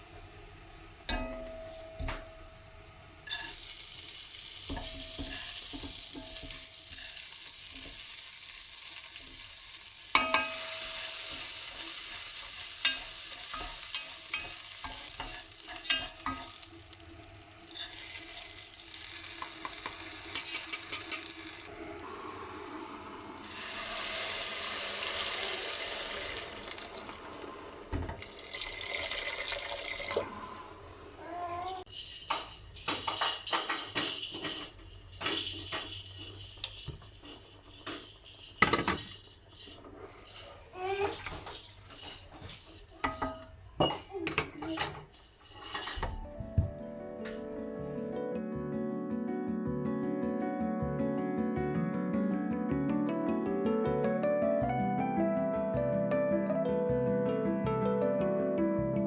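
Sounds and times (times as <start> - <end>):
food sizzling in a frying pan: 0.0 - 46.7
spoon clinking against pan: 10.1 - 11.4.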